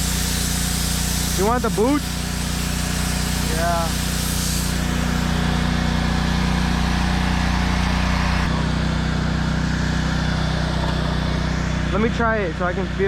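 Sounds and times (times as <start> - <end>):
pressure washer hiss: 0.0 - 8.7
petrol engine running: 2.6 - 13.0.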